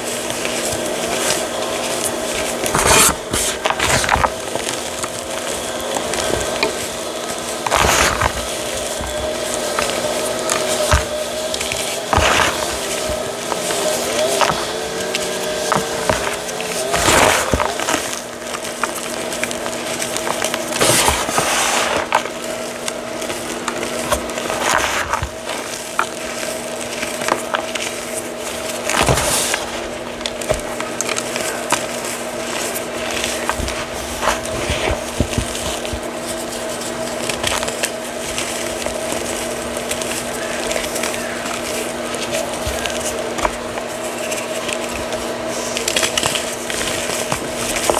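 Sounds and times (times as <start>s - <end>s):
chalk crushing and crunching: 0.0s - 47.9s
steady background hum: 0.0s - 47.9s.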